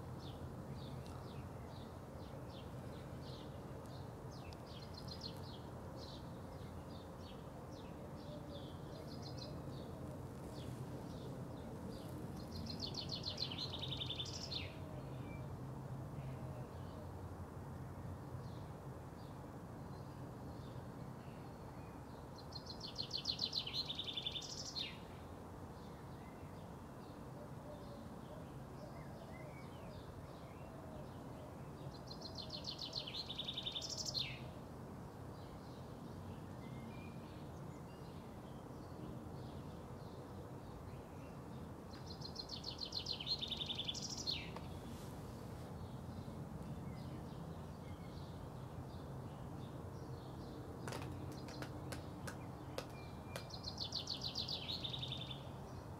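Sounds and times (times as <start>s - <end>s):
songbird trilling: 42.2s - 44.6s.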